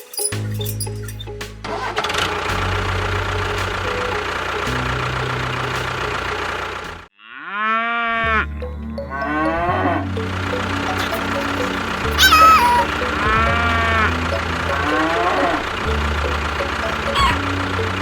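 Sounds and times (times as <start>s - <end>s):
small motor running: 10.3s - 18.0s
pitched call: 10.9s - 14.1s, 16.9s - 17.6s.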